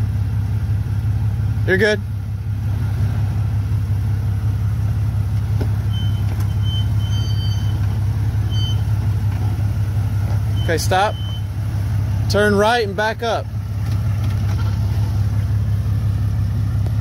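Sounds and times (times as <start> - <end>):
car engine at low revs: 0.0 - 17.0.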